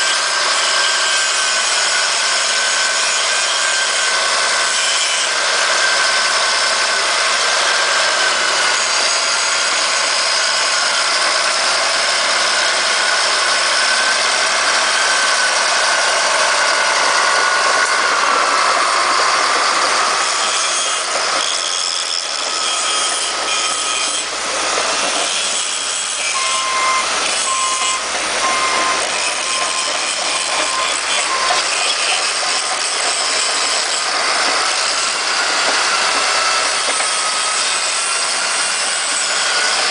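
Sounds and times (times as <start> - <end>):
bulldozer running: 0.1 - 39.9
short repeated high tones: 26.3 - 31.6.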